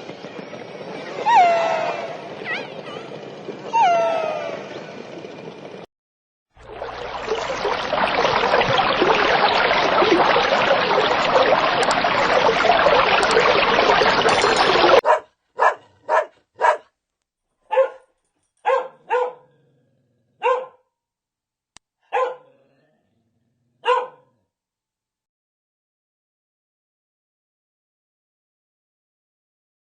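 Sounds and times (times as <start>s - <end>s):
loud continuous din: 0.0s - 5.8s
dog barking: 15.0s - 16.9s, 17.7s - 19.6s, 20.4s - 20.8s, 22.0s - 22.6s, 23.8s - 24.4s.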